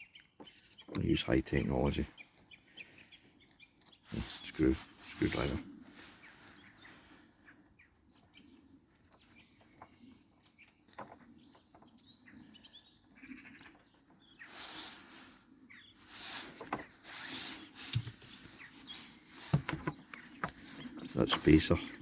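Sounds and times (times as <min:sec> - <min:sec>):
faint birdsong: 0:00.0 - 0:22.0
scraping handling noise: 0:16.0 - 0:21.8.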